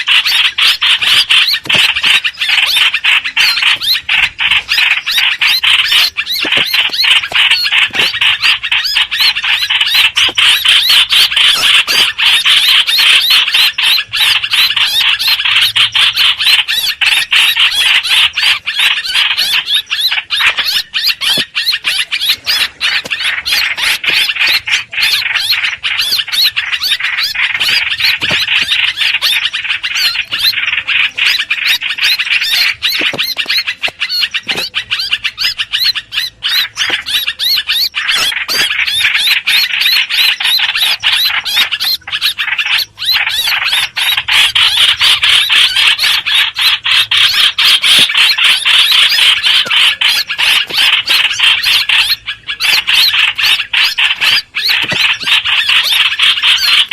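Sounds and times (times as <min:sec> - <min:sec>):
bird squeaky chatter: 0:00.0 - 0:56.9.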